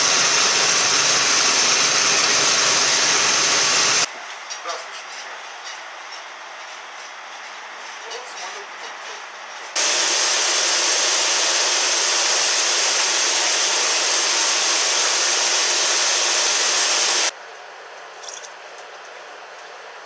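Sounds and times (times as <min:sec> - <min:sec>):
pressurized spray hissing: 0:00.0 - 0:04.1, 0:09.8 - 0:17.3.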